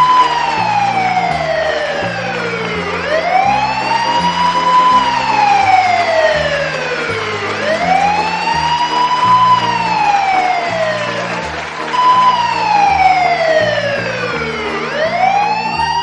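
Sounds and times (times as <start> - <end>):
music with low held notes: 0.0 - 16.0
siren wailing: 0.0 - 16.0.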